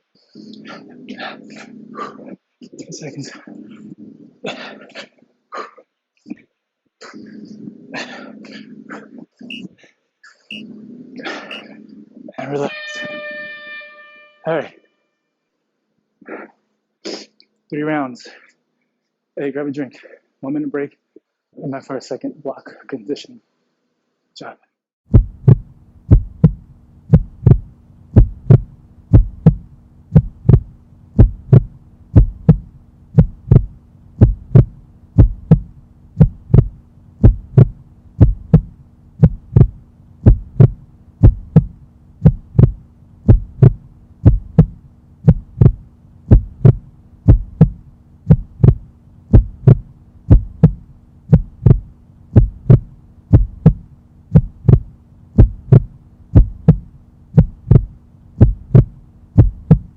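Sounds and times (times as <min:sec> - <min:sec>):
heartbeat-like thumping pulse: 0:25.1 - 0:59.9
low steady hum: 0:25.1 - 0:59.9.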